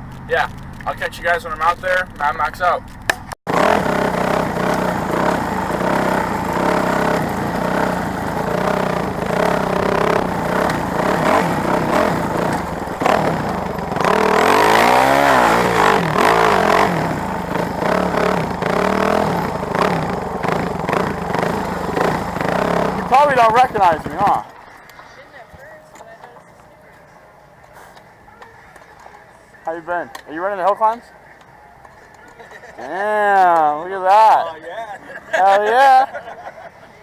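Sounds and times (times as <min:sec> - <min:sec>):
motorcycle engine revving: 0:00.0 - 0:24.8
motorcycle engines running: 0:00.0 - 0:36.4.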